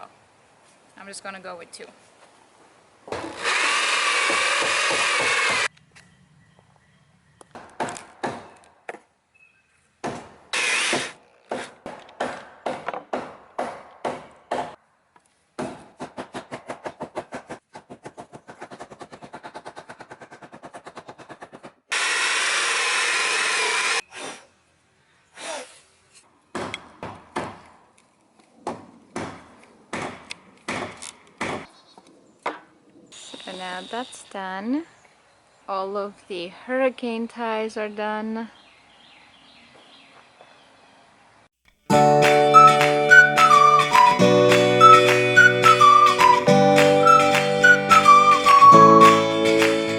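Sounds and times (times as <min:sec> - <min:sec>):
electric drill driving screws: 0:03.1 - 0:05.7, 0:10.5 - 0:11.2, 0:21.9 - 0:24.3
sharp knocks: 0:10.0 - 0:14.8.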